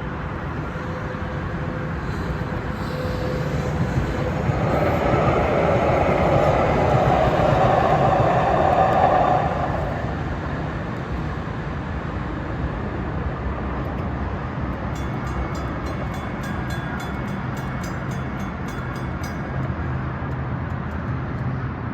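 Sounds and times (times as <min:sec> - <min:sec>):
train passing rumble: 0:00.0 - 0:21.9
crossing bell ringing rapidly: 0:15.0 - 0:20.3.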